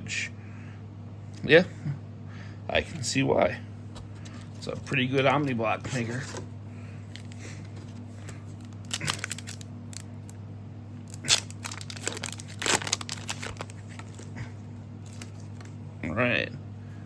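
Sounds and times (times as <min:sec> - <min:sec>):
steady low hum: 0:00.0 - 0:17.0
foil wrapper crinkling and tearing: 0:08.3 - 0:10.4, 0:11.1 - 0:14.4, 0:15.0 - 0:15.8.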